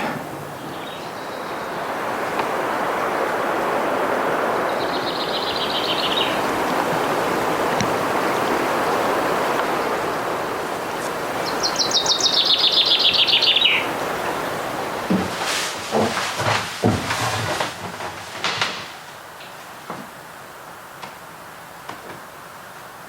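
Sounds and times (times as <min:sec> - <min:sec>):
river rushing: 0:00.0 - 0:17.2
songbird trilling: 0:00.5 - 0:02.1, 0:04.6 - 0:10.0, 0:10.8 - 0:14.7.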